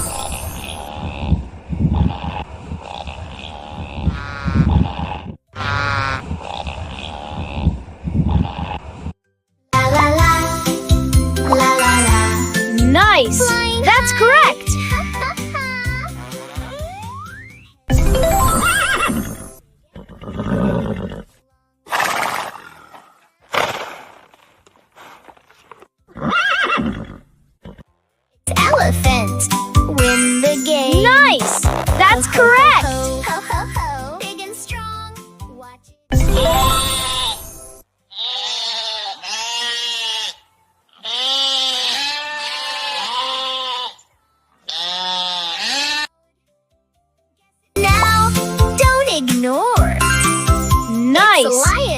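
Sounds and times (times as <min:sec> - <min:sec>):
horse neighing: 0:02.3 - 0:07.5, 0:26.1 - 0:27.8
goat or sheep bleating: 0:38.1 - 0:46.1.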